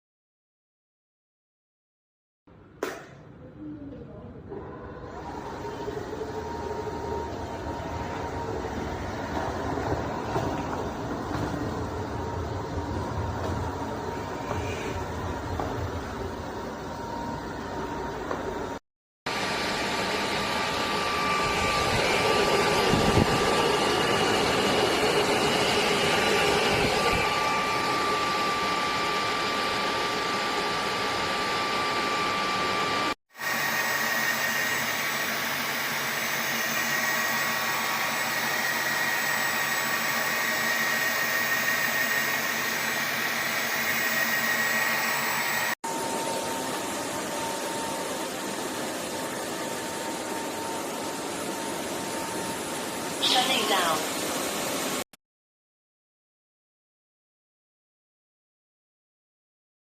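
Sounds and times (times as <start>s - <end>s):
vacuum mop motor whine: 4.5s - 55.0s.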